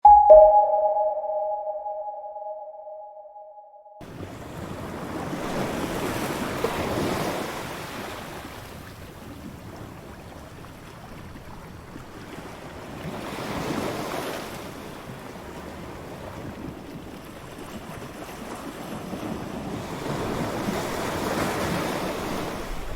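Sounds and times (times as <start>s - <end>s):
two-tone electronic jingle: 0.0s - 4.0s.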